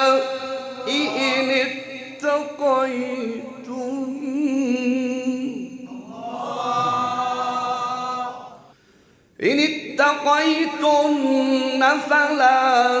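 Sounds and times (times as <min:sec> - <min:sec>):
person chanting melodically: 0:00.0 - 0:08.7.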